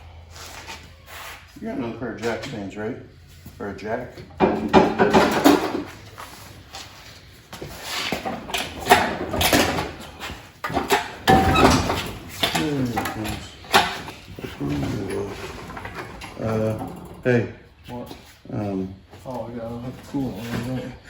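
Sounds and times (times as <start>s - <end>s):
objects knocking and scraping: 4.2s - 17.3s
person speaking indistinctly: 14.4s - 15.7s.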